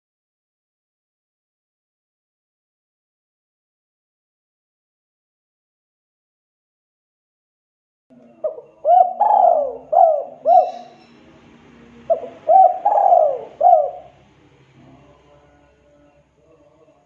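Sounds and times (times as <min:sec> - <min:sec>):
dove cooing: 0:08.2 - 0:14.3.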